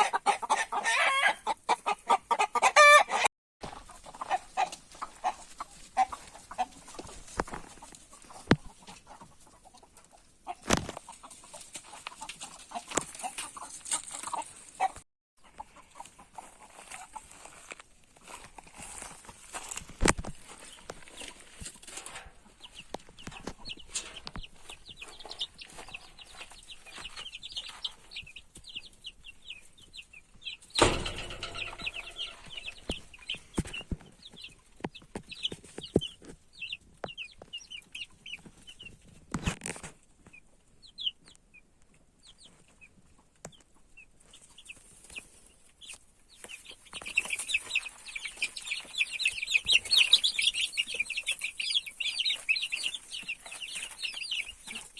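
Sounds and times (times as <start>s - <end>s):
chickens clucking: 0.0s - 54.9s
knocks and clicks: 30.8s - 32.2s.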